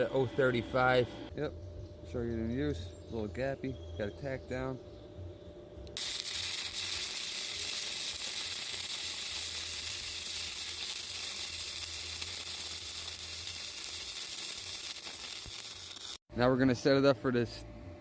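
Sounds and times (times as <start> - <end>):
welding arc crackling: 5.9 - 16.2.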